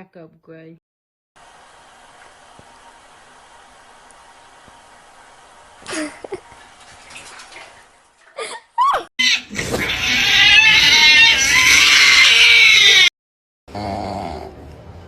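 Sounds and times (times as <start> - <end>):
cat yowling: 9.8 - 13.1.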